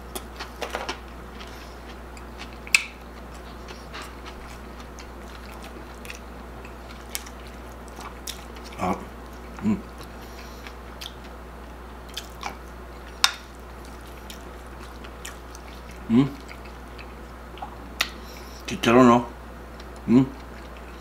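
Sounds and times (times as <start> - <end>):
person chewing food: 0.0 - 18.7, 19.7 - 21.0
low vocal sounds: 8.7 - 9.9, 16.0 - 16.5, 20.0 - 20.4.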